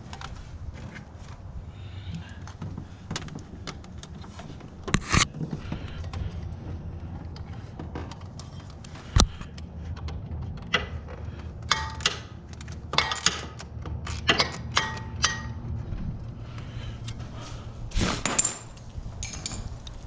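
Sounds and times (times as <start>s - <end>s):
low steady hum: 0.0s - 20.0s
hand tools clinking on metal: 11.7s - 15.5s, 18.2s - 19.8s.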